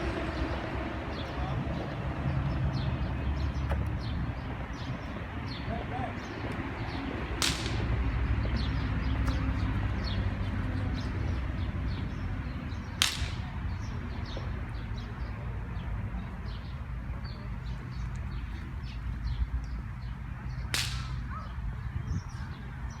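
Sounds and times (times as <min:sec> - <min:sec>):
steady low rumble: 0:00.0 - 0:23.0
sharp cracks: 0:07.4 - 0:08.2, 0:12.9 - 0:13.8, 0:20.7 - 0:21.3.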